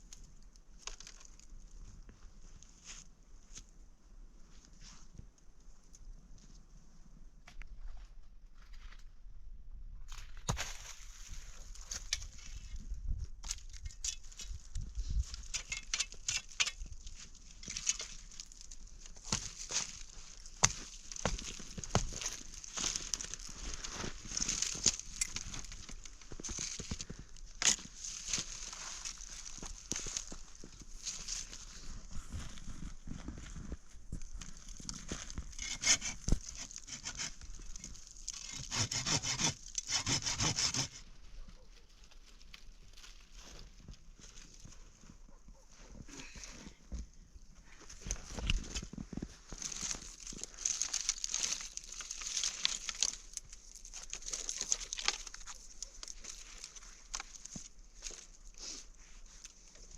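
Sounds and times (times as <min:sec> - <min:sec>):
rustling and crackling handling noise: 0:10.1 - 0:38.7, 0:41.0 - 0:59.9
hand saw cutting wood: 0:35.6 - 0:37.4, 0:38.3 - 0:41.0.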